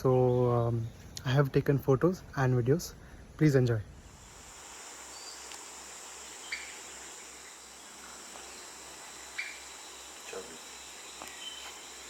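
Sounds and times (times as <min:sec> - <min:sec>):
insects droning: 0:02.2 - 0:12.0
short insect chirps: 0:04.0 - 0:12.0.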